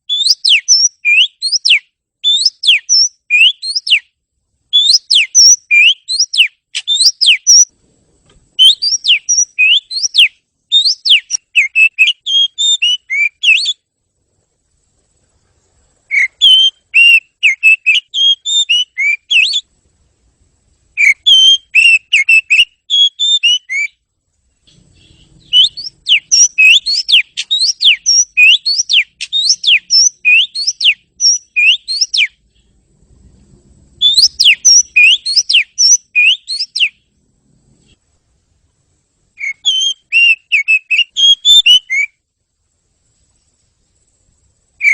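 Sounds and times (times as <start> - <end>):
bird singing whistled notes: 0.0 - 7.7, 8.6 - 13.9, 16.0 - 19.7, 20.9 - 32.8, 34.0 - 37.2, 39.4 - 42.2.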